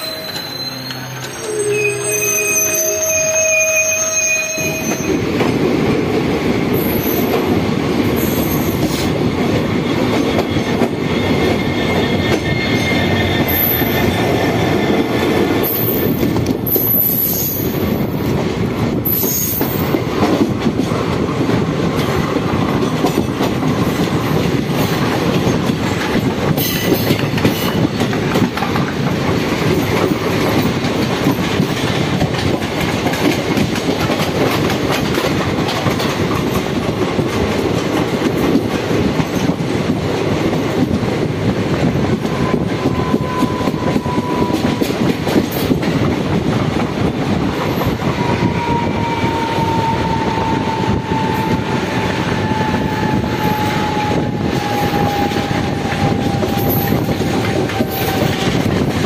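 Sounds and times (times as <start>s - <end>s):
high-pitched wheel squeals: 0.0s - 5.3s, 48.2s - 58.6s
train wheels rumbling on rail: 0.0s - 59.0s
clickety-clack over rail joints: 4.8s - 59.0s.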